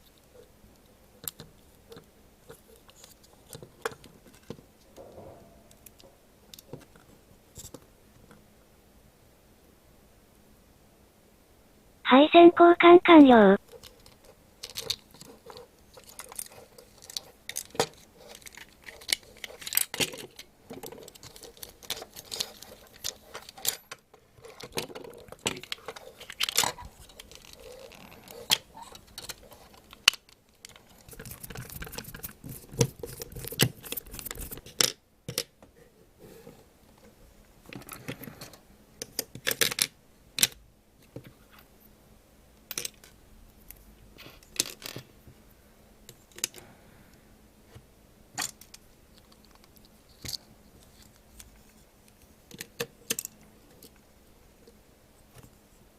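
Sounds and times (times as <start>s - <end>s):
plastic toy parts clicking: 39.0s - 40.6s.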